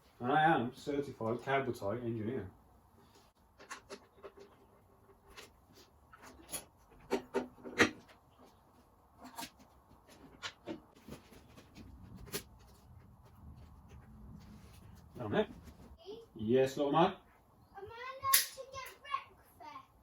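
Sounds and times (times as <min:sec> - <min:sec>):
hand tools clicking and knocking: 0:03.4 - 0:11.0.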